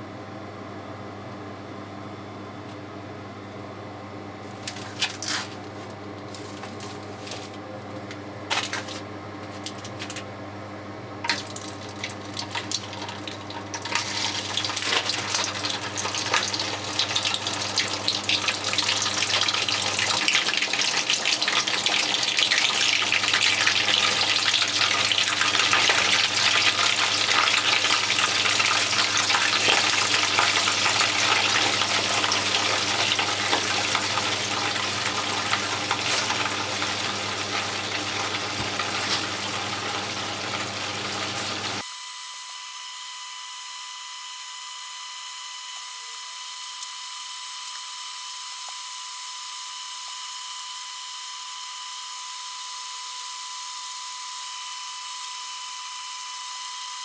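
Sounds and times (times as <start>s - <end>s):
dumplings deep-frying in oil: 11.2s - 42.2s.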